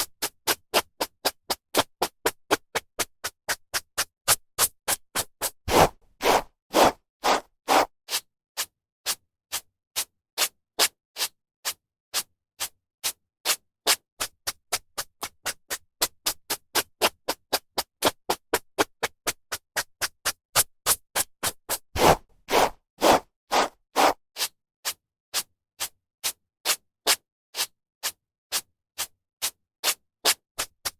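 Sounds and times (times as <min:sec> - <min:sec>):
hairbrush swishing through hair: 0:05.7 - 0:07.9, 0:22.0 - 0:24.2.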